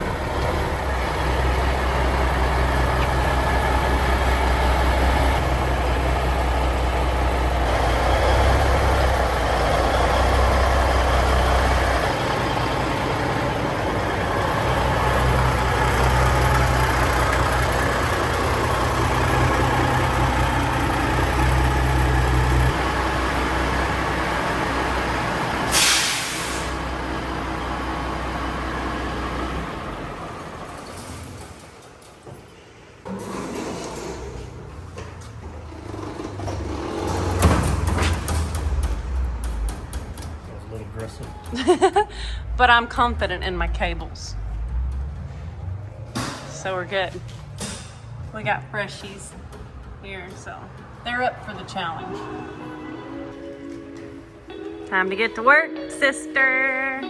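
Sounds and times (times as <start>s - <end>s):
diesel truck engine rumbling: 0.0s - 52.9s
air hiss: 25.7s - 26.8s.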